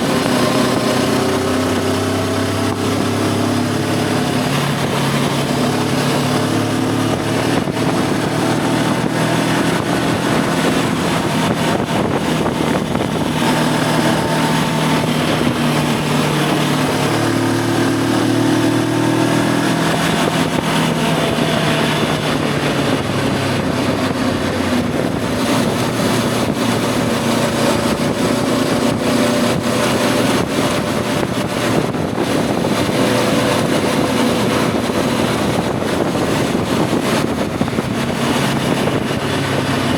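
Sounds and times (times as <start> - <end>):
motorcycle engine running: 0.0 - 39.9
wind rush: 0.0 - 39.9.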